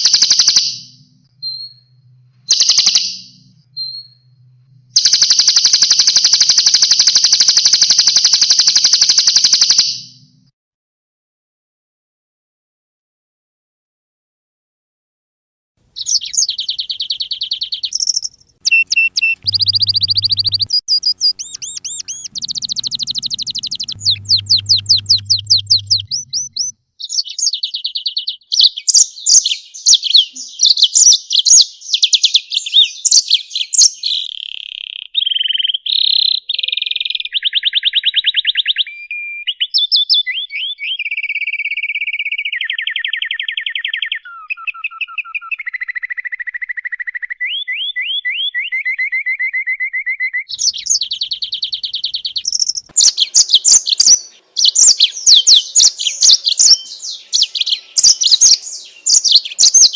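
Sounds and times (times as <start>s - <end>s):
low hum: 1.0s - 2.5s, 3.3s - 5.0s, 18.2s - 26.7s
songbird trilling and chirping: 16.0s - 35.6s, 50.5s - 59.9s.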